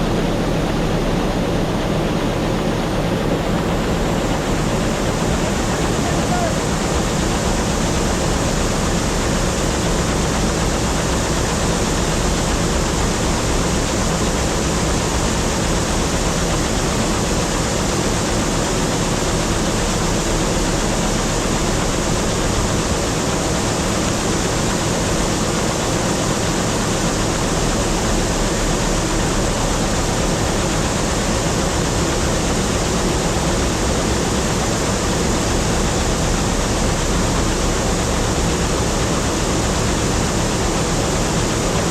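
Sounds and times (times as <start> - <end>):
combine harvester running: 0.0 - 41.9.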